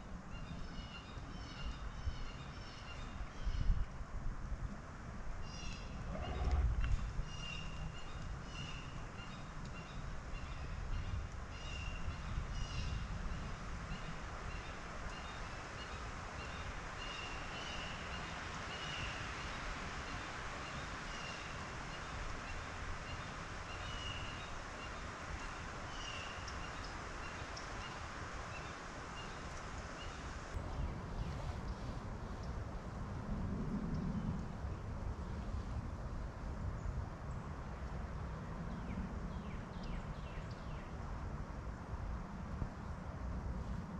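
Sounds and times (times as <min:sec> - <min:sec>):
wind rumble on microphone: 0:00.0 - 0:43.9.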